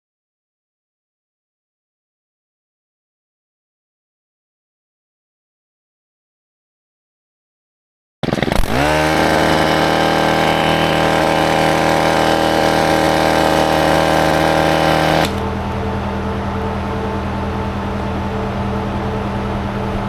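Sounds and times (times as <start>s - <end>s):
motor spinning up and running: 8.2s - 16.1s.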